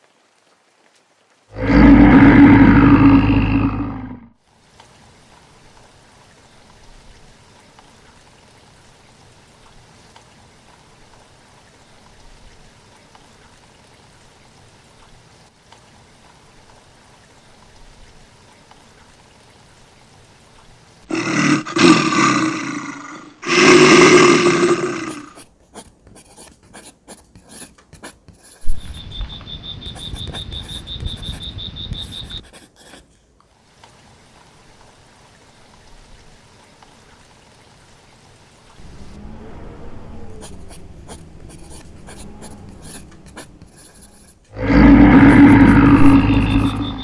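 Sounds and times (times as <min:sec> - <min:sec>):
big cat roaring: 0:01.5 - 0:04.3, 0:21.1 - 0:25.4, 0:38.8 - 0:43.7, 0:44.5 - 0:47.0
rough noise with high tone: 0:38.8 - 0:47.0.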